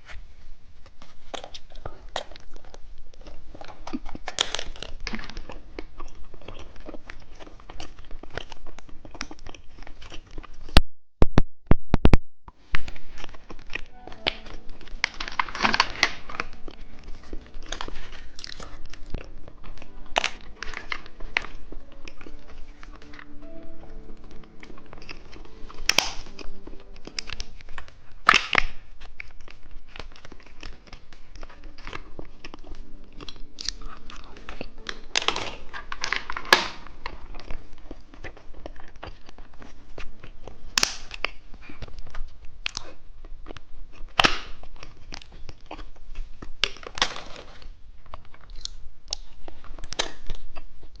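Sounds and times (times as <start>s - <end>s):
chewing candy: 0.8s - 10.8s, 12.8s - 51.0s
plastic wrapper crinkling: 12.6s - 51.0s.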